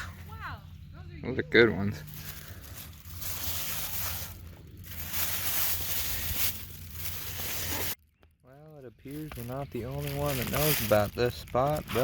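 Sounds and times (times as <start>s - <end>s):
dry leaves rustling and crunching: 1.8s - 8.0s, 9.1s - 12.0s.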